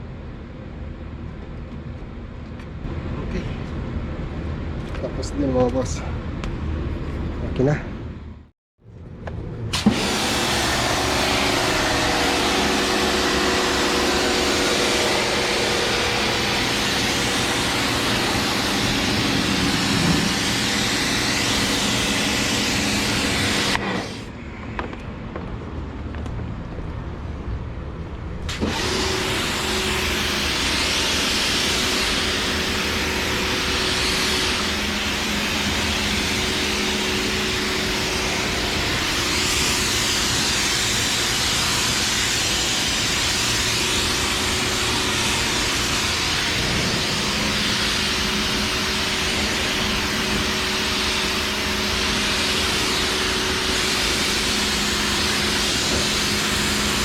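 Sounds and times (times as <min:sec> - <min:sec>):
loud machine hissing and humming: 0:09.7 - 0:24.9, 0:28.4 - 0:57.0.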